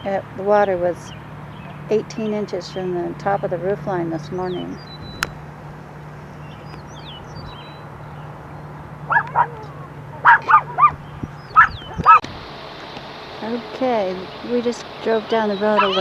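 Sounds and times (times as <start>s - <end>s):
low steady hum: 0.0s - 16.0s
small birds chirping faintly: 0.0s - 16.0s
dog yipping: 8.9s - 12.3s, 15.8s - 16.0s.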